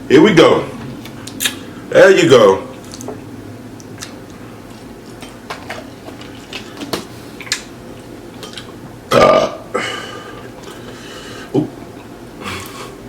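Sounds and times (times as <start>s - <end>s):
eating clicks and smacks: 1.0s - 1.6s, 2.8s - 3.2s, 3.8s - 7.7s
person burping: 9.1s - 10.2s.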